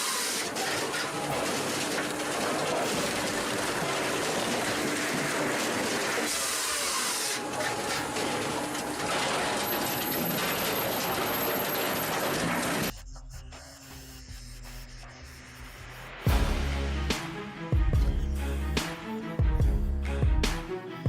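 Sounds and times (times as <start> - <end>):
burst of hissing: 0.0 - 0.6
heavy machinery running: 0.0 - 12.9.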